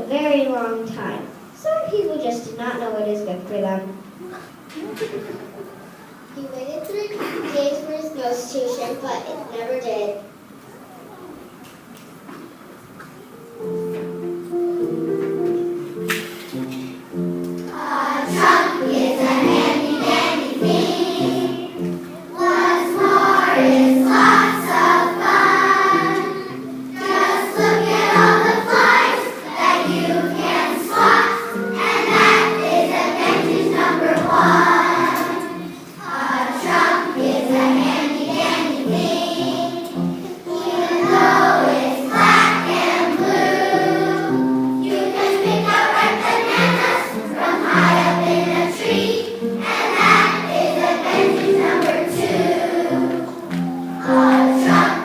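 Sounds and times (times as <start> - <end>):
children singing in unison: 17.7 - 55.0.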